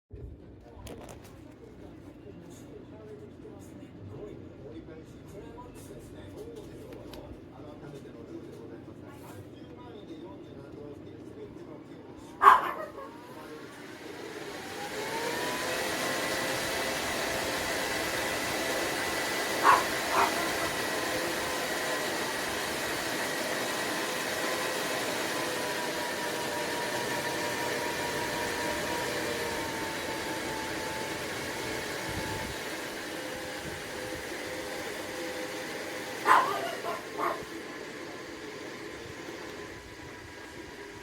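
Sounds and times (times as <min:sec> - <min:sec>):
small fan whirring with whine: 0:00.1 - 0:41.0
dog barking: 0:12.4 - 0:13.2, 0:19.6 - 0:20.8, 0:36.2 - 0:37.5.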